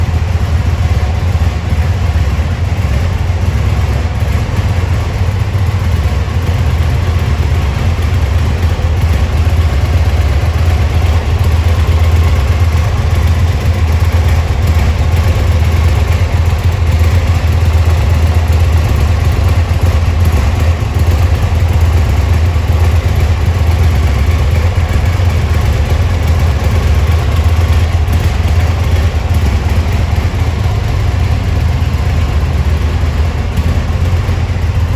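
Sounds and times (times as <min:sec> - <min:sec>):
motorcycle engine idling: 0:00.0 - 0:34.9.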